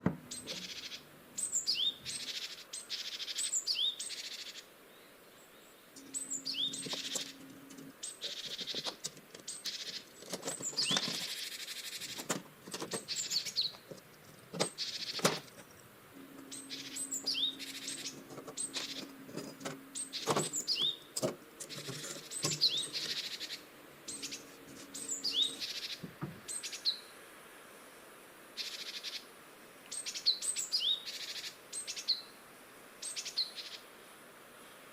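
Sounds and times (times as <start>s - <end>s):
birds chirping: 0.0s - 27.2s, 29.9s - 32.3s, 33.0s - 33.8s
low steady hum: 4.9s - 11.4s, 12.0s - 26.5s
sharp clicks and knocks: 8.5s - 9.5s, 10.2s - 11.4s, 12.0s - 15.8s, 18.1s - 23.2s.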